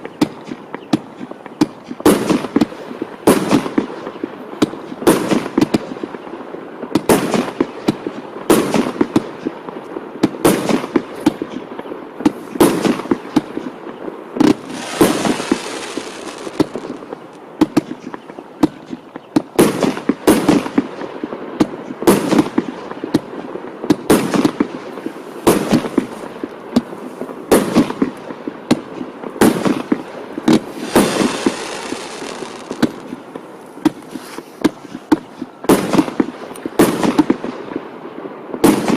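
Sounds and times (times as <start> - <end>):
firework bangs with crackling: 0.0 - 38.9
hissing crackle: 14.4 - 18.4, 28.1 - 35.5.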